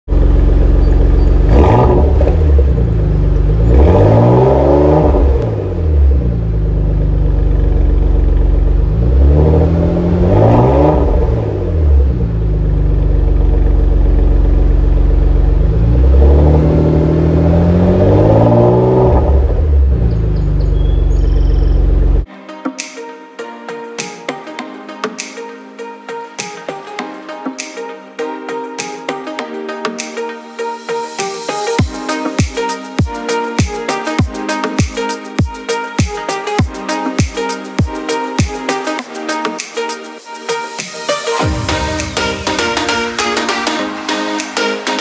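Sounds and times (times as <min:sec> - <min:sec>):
car engine idling and revving: 0:00.1 - 0:22.3.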